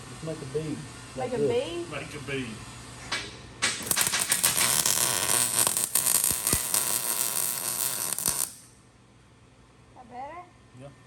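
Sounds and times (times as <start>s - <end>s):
arc welder crackling: 3.6s - 8.8s.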